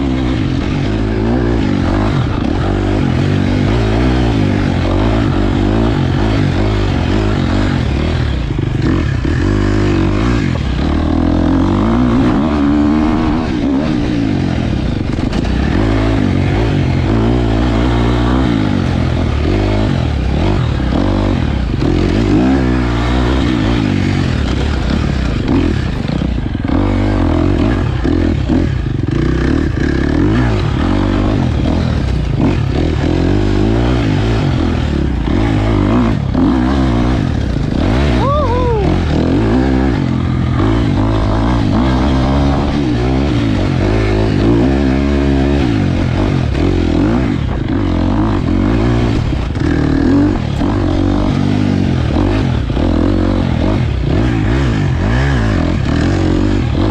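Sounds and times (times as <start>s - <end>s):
dirt bike engine revving: 0.0s - 56.9s
knocks and clatter from bike: 15.0s - 38.0s.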